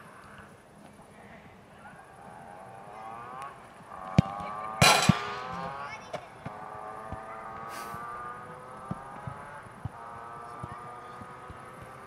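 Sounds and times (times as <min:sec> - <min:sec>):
vehicle engine droning: 0:02.1 - 0:12.0
sharp thump: 0:04.2 - 0:06.6
loud rush of noise: 0:04.8 - 0:06.8.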